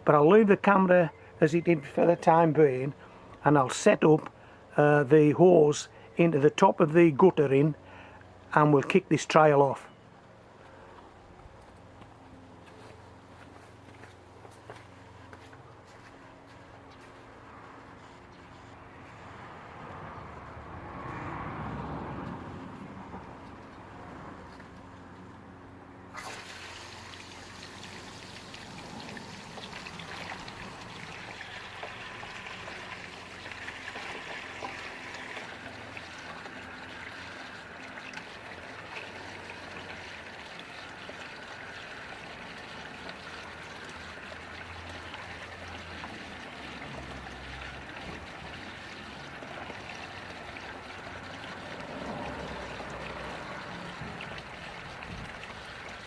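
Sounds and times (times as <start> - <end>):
water pouring into a box: 26.1 - 56.0
water running down guttering: 26.1 - 56.0.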